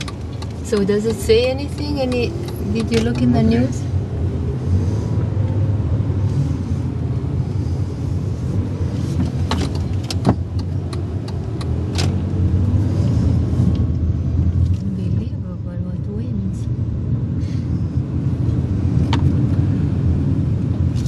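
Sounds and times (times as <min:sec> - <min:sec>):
sharp clicks: 0:00.0 - 0:03.5, 0:09.5 - 0:12.2
car interior rumble: 0:00.0 - 0:21.0.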